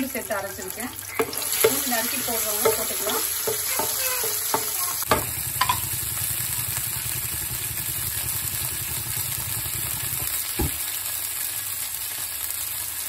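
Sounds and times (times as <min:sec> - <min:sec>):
paste sizzling in hot oil: 0:00.0 - 0:13.0
knock: 0:04.6 - 0:05.8, 0:10.6 - 0:10.8.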